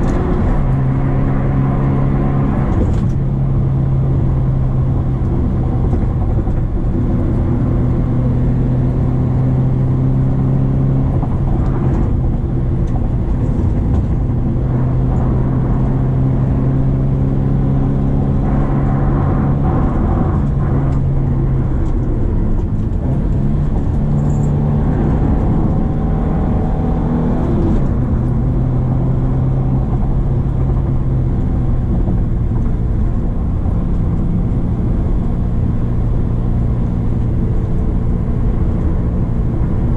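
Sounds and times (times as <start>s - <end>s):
car engine pulling uphill: 0.0s - 39.9s
tyre and road noise: 0.0s - 39.9s.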